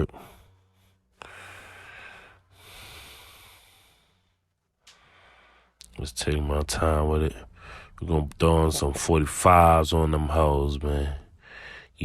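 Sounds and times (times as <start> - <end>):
man breathing hard: 0.1 - 5.8, 7.5 - 8.0, 11.3 - 12.0.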